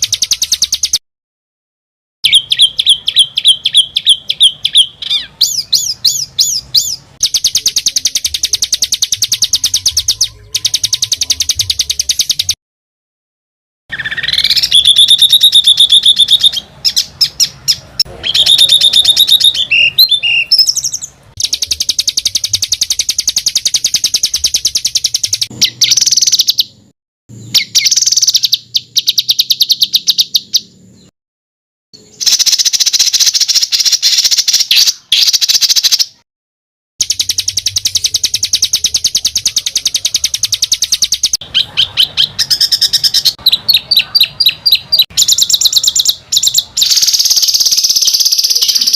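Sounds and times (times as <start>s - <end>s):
songbird harsh trills: 2.2s - 12.6s, 13.9s - 31.1s, 32.0s - 36.2s, 37.0s - 48.9s.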